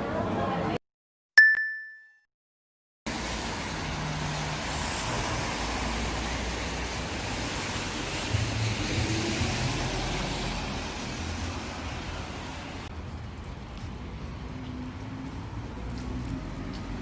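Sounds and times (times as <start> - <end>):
bright bell ding: 1.4 - 2.2
road traffic hum: 3.1 - 17.0.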